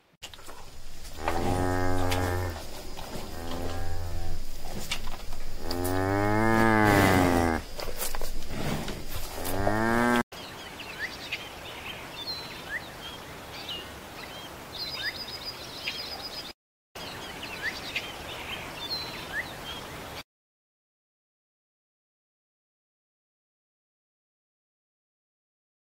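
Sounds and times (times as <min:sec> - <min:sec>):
cow mooing: 0:01.1 - 0:04.8, 0:05.4 - 0:07.6, 0:09.3 - 0:10.2.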